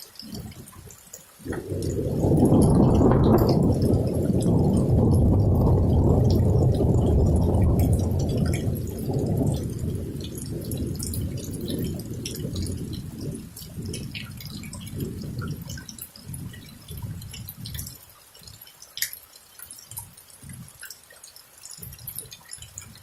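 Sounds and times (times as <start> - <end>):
rain dripping and ticking: 0.0 - 23.0
thunder rolling: 1.4 - 18.0.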